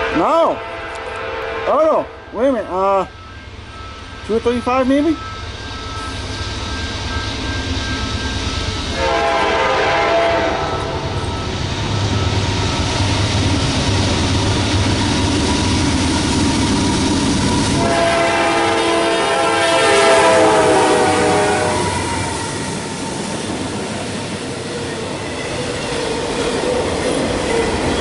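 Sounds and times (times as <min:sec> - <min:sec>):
train air horn chord: 0:00.0 - 0:02.3, 0:08.9 - 0:11.2, 0:17.8 - 0:22.1
diesel locomotives rumbling: 0:00.0 - 0:28.0.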